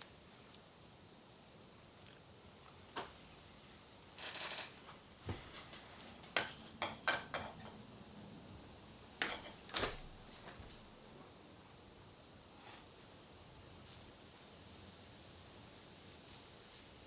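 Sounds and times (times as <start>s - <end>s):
light clicks and clinks: 9.2s - 11.0s.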